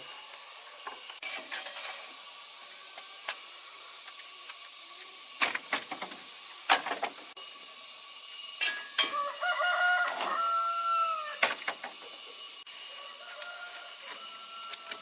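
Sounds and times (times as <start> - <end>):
rooster crowing: 9.1 - 11.4, 12.8 - 15.0.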